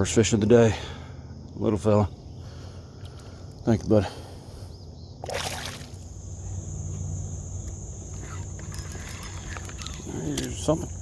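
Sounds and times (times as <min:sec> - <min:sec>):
high insect buzz: 0:04.5 - 0:11.0
water splash: 0:05.2 - 0:06.1.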